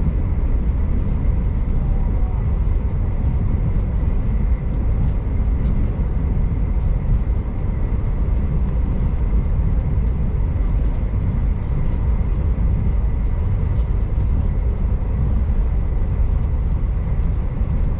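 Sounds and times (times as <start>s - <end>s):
faint steady whine: 0.0s - 17.9s
train rumbling from inside carriage: 0.0s - 17.9s
light ticks: 13.6s - 14.3s.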